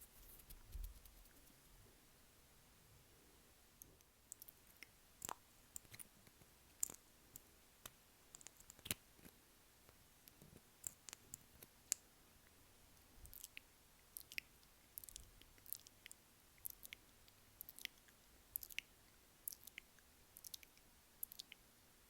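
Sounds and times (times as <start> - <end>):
wet tongue and lip clicks: 3.8 - 6.1, 6.7 - 7.5, 13.2 - 21.6.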